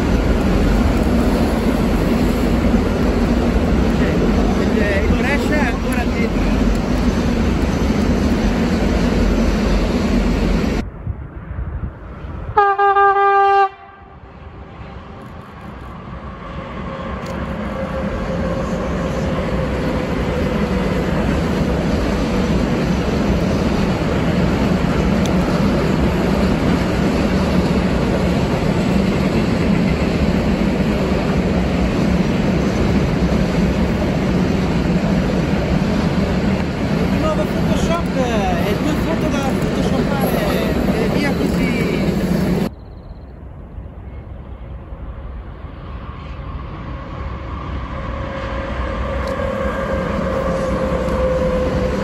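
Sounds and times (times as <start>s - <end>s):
freight train wheel clatter: 0.0s - 10.4s, 19.0s - 42.7s
train rumble: 0.0s - 52.0s
locomotive horn blast: 12.5s - 14.2s, 48.4s - 52.0s.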